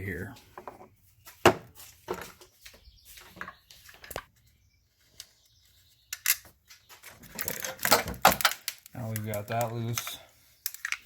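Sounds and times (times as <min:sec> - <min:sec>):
wiring harness clicking and rustling: 0:06.1 - 0:11.0.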